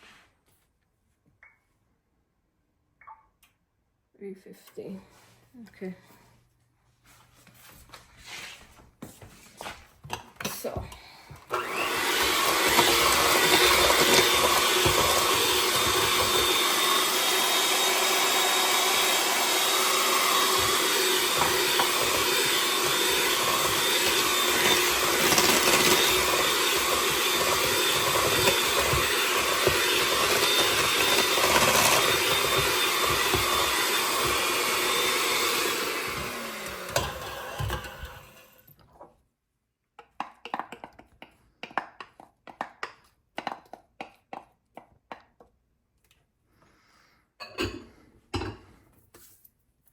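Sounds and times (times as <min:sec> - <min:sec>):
electric mixer running: 0:11.5 - 0:38.6.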